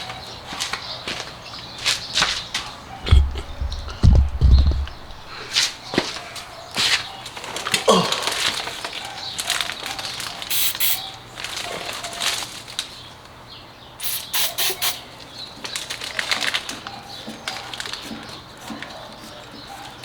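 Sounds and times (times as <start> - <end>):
aerosol spray hissing bursts: 10.5 - 11.0, 14.0 - 15.0.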